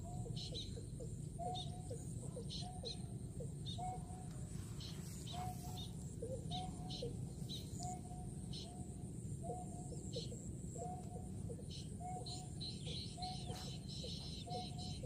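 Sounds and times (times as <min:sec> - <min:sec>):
low background noise: 0:00.0 - 0:15.0
bird whistling call: 0:03.7 - 0:04.1, 0:05.2 - 0:08.8.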